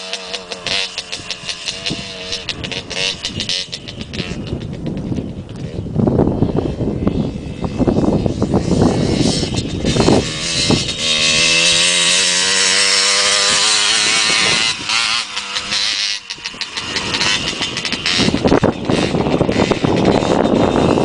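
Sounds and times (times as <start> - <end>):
motocross bike engine revving: 0.0 - 21.0.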